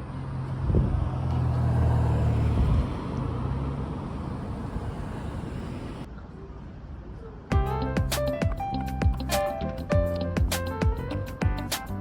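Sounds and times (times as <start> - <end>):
vehicle engine humming: 0.0 - 6.1
road noise: 0.0 - 12.0.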